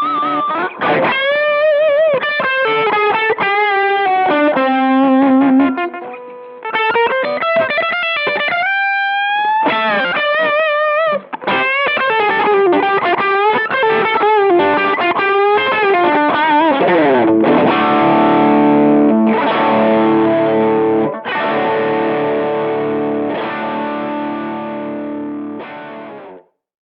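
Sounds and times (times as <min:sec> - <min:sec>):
overdriven electric guitar: 0:00.0 - 0:26.6.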